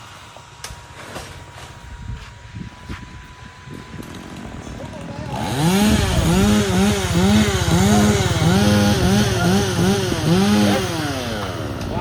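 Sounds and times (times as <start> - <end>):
chainsaw revving in bursts: 3.9 - 12.0.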